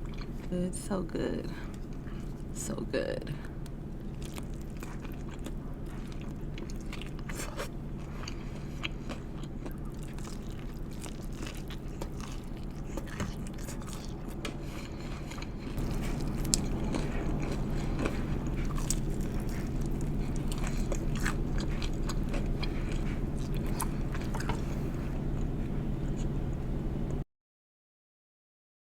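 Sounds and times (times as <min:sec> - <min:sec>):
chewing and biting food: 0:00.0 - 0:00.5, 0:03.6 - 0:26.3
steady low hum: 0:00.0 - 0:27.2.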